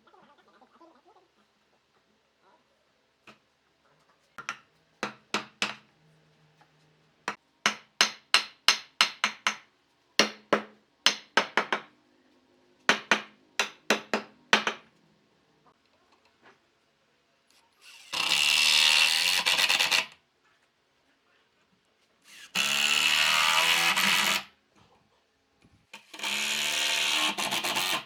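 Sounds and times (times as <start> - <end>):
hammer striking wood: 4.4 - 5.8, 7.3 - 9.6, 10.2 - 11.9, 12.9 - 14.9.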